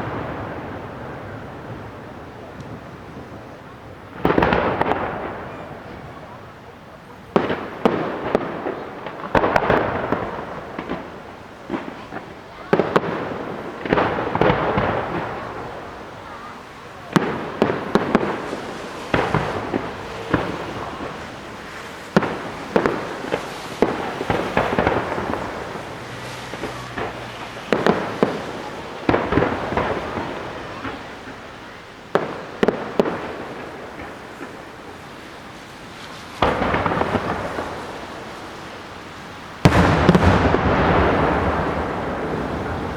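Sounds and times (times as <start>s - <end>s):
firework crackling: 0.0s - 42.9s
firework shells bursting: 17.0s - 34.8s, 35.9s - 38.6s, 39.4s - 42.9s.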